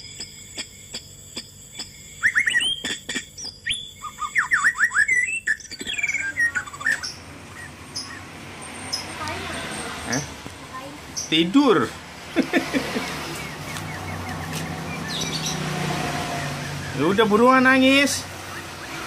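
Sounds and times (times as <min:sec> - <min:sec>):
steady high whine with ticks: 0:00.0 - 0:08.2, 0:10.4 - 0:15.2
bird chirping: 0:00.0 - 0:19.0.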